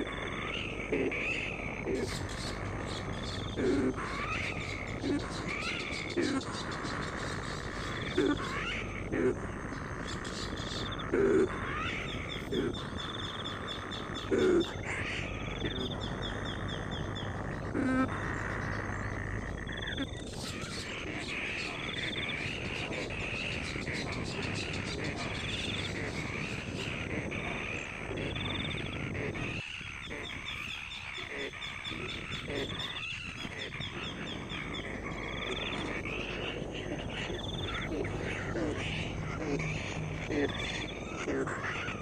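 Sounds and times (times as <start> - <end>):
wavering bird chorus: 0.0 - 42.0
bird trills: 9.7 - 42.0.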